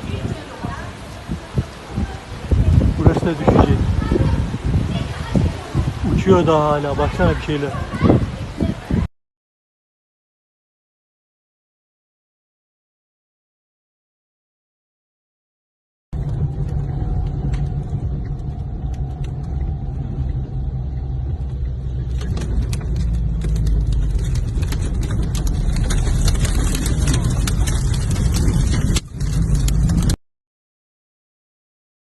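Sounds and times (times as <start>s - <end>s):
strong wind buffeting microphone: 0.0s - 9.1s, 16.1s - 30.2s.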